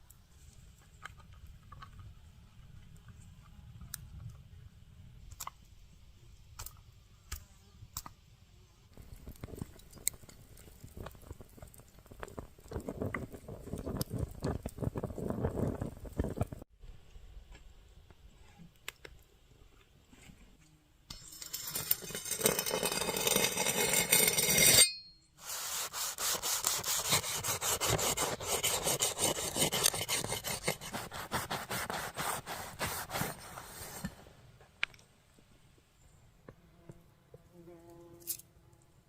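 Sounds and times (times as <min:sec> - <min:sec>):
rasping scraping strokes: 0:21.1 - 0:34.3.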